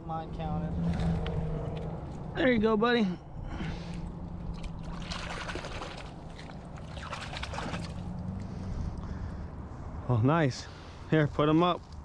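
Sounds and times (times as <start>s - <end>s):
water splashing and trickling: 3.4s - 8.9s.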